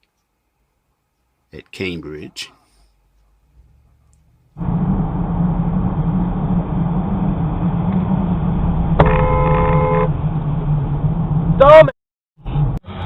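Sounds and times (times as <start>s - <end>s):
car road and engine noise: 2.9s - 13.0s
car horn: 9.0s - 10.2s.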